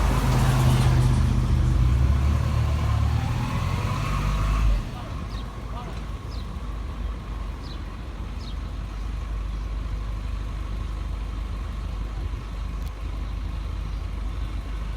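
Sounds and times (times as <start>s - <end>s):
truck engine idling: 0.0s - 14.9s.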